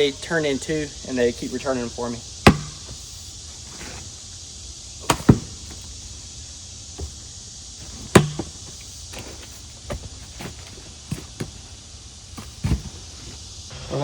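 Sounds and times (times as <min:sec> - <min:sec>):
steel tool knocking into logs: 0:02.4 - 0:03.0, 0:05.0 - 0:05.9, 0:07.9 - 0:08.7.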